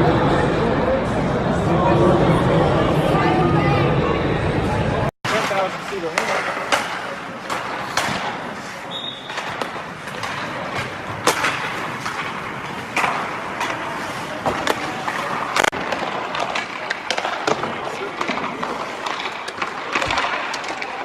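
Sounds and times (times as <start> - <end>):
pucks cracking against boards: 5.3 - 21.0
skates scraping ice: 5.3 - 21.0
sticks and pucks clacking: 5.3 - 21.0.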